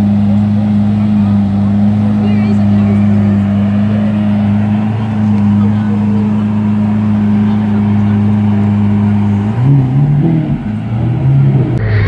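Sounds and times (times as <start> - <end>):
car engine idling and pulling away: 0.0 - 12.0.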